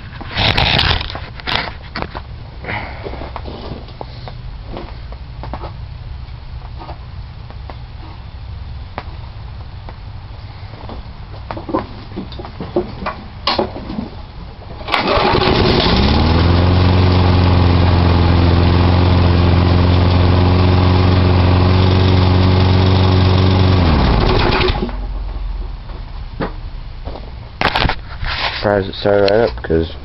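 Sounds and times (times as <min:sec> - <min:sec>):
lawn mower engine running: 0:14.8 - 0:26.2.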